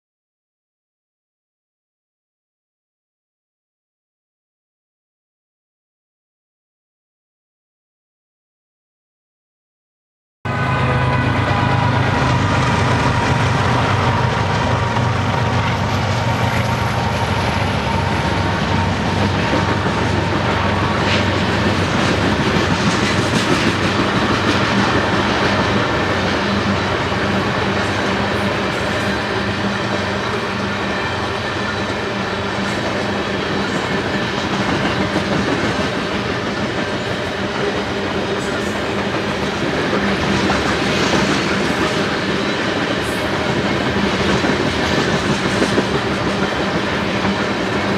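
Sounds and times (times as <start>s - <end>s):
diesel locomotive engines: 10.5s - 47.9s
wheels clacking over rail joints: 11.6s - 29.2s.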